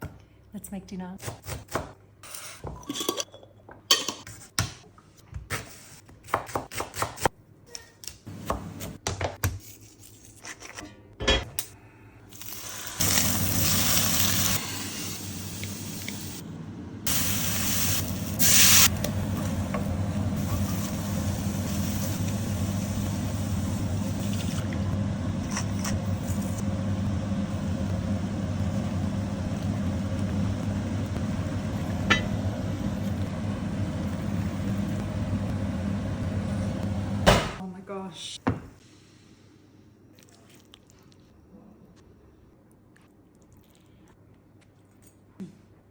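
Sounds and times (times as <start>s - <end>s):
food sizzling in a pan: 12.4s - 16.4s, 17.1s - 37.2s
kitchen knocks and clatter: 37.2s - 37.6s.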